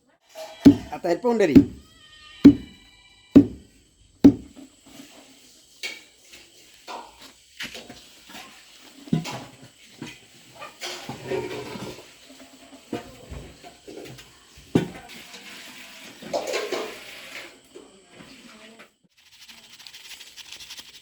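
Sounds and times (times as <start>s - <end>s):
light knocks and clatter: 0.7s - 0.9s, 1.6s - 1.8s, 2.5s - 2.7s, 3.4s - 3.6s, 4.3s - 4.5s
heavy thuds: 0.7s - 1.8s, 2.5s - 2.7s, 3.4s - 3.6s, 4.3s - 4.5s.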